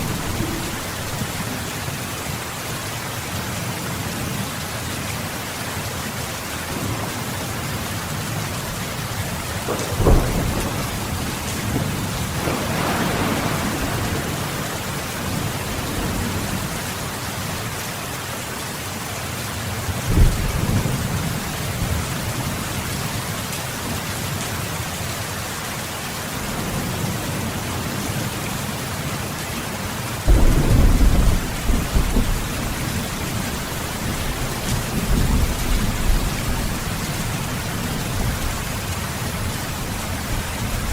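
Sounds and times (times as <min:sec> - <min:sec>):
thunder clap: 0:00.0 - 0:01.8, 0:09.0 - 0:17.3, 0:30.3 - 0:38.5
rolling thunder rumble: 0:00.0 - 0:02.4, 0:06.8 - 0:17.8, 0:20.0 - 0:22.7, 0:30.3 - 0:40.9
heavy rain: 0:00.0 - 0:40.9.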